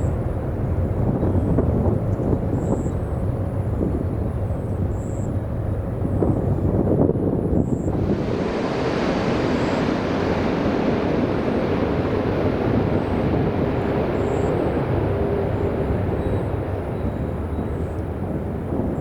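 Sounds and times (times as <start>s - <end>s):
jet engines rushing: 4.1s - 19.0s
faint held hum: 7.9s - 19.0s.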